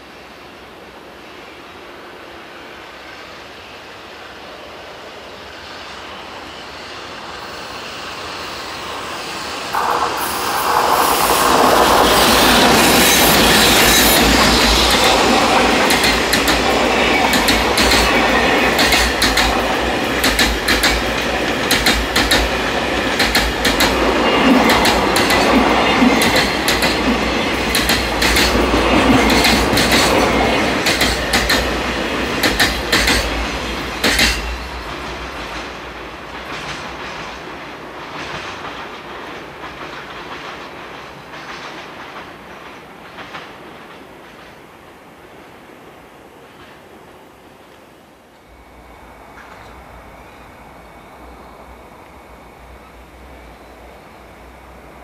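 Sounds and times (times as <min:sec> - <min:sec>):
freight train rumbling past: 0:00.0 - 0:55.0
wheels clicking over rail joints: 0:13.8 - 0:33.4.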